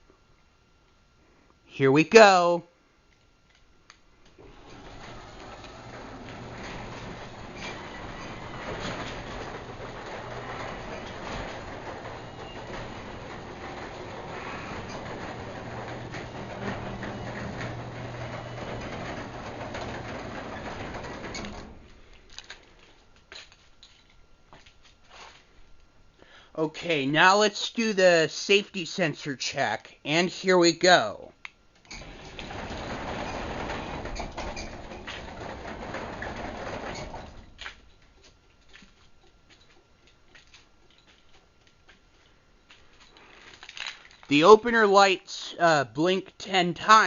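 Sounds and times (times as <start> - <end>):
garage door opener humming: 4.1 - 23.4, 31.7 - 45.1.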